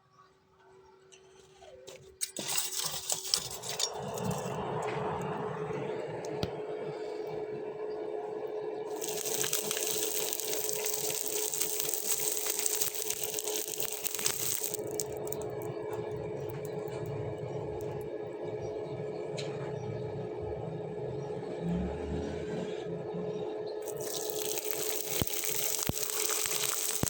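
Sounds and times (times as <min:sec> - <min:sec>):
grinding of steel blade: 0:01.9 - 0:04.6
electric grinder running: 0:08.9 - 0:15.6, 0:23.8 - 0:27.0.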